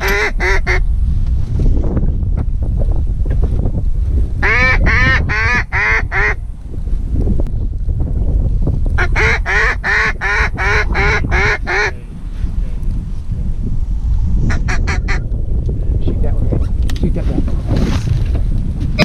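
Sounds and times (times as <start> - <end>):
duck call quacks: 0.0 - 0.8, 4.4 - 6.4, 9.0 - 12.0
low wind rumble: 0.0 - 19.0.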